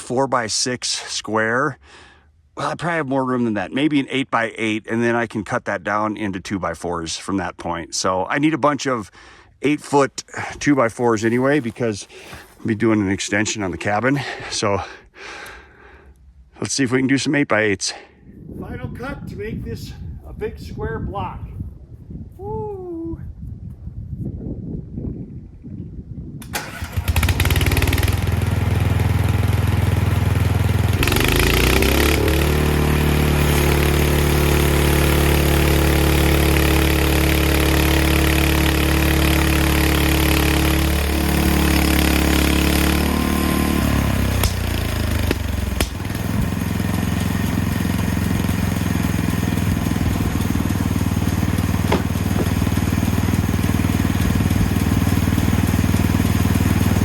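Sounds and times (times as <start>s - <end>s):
small gasoline engine running: 26.4s - 57.0s.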